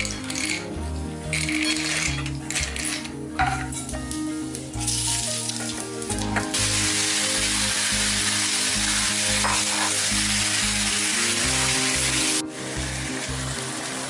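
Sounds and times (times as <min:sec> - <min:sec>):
background music with bass: 0:00.0 - 0:14.0
food sizzling in a wok: 0:04.8 - 0:14.0.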